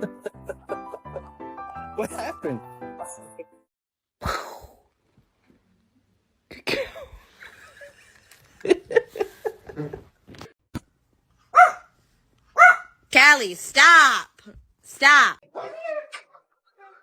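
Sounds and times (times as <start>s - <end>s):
dog barking: 11.5s - 12.0s, 12.6s - 13.0s, 15.5s - 17.0s.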